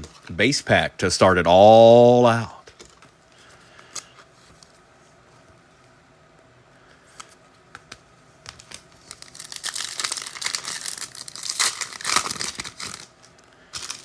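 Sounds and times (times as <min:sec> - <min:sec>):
wrapper crinkling and tearing: 0:08.6 - 0:14.0.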